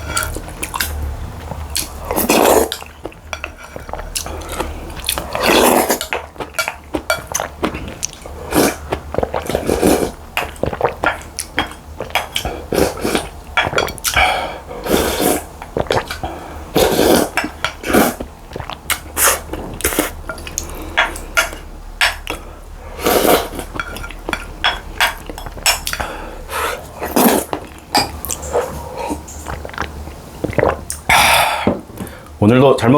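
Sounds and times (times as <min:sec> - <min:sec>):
chewing: 0:00.0 - 0:22.5, 0:23.1 - 0:31.4
cutlery clinking against bowl: 0:23.7 - 0:25.8.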